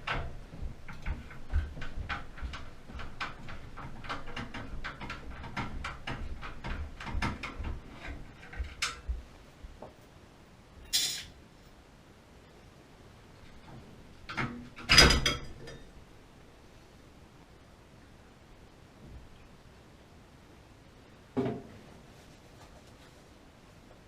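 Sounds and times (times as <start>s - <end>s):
metal parts clicking and tapping: 10.9s - 11.3s.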